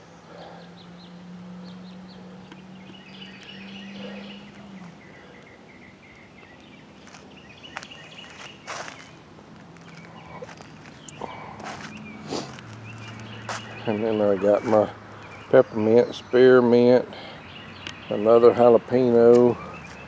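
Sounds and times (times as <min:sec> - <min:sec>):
faint bird chirps: 0:01.6 - 0:06.8.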